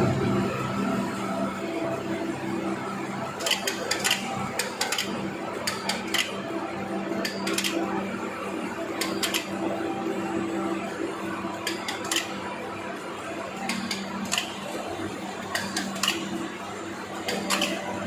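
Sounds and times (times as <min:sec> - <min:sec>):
industrial machinery hum: 0:00.0 - 0:18.0
metallic clanks and clicks: 0:03.4 - 0:06.4, 0:07.2 - 0:07.9, 0:09.0 - 0:09.6, 0:11.6 - 0:12.4, 0:13.6 - 0:14.7, 0:15.4 - 0:16.4, 0:17.2 - 0:17.9.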